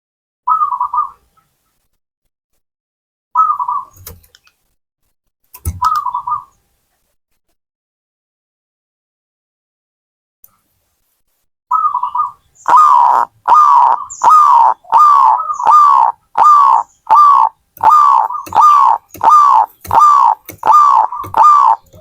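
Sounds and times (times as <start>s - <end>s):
dove cooing: 11.7s - 22.0s.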